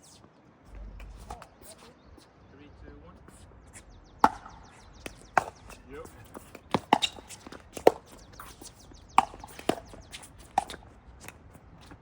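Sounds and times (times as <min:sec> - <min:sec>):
ball bouncing on court: 0:04.2 - 0:12.0.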